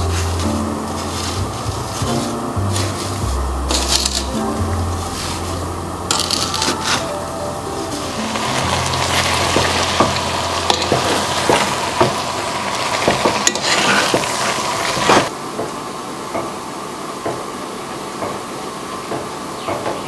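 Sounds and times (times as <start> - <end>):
food sizzling in a pan: 0.0 - 15.3
quiet hiss: 0.0 - 15.4.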